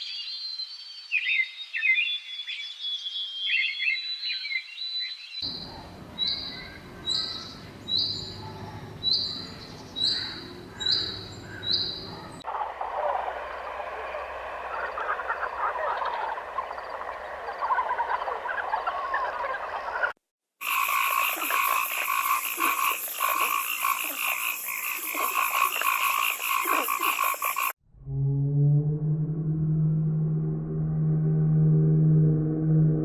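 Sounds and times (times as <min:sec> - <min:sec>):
frogs croaking: 0:05.4 - 0:27.8.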